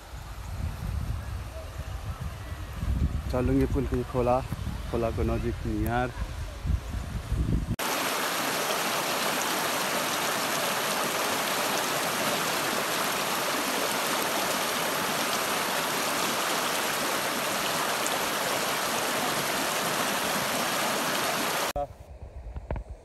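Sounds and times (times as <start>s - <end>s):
river water rushing: 7.8s - 21.8s.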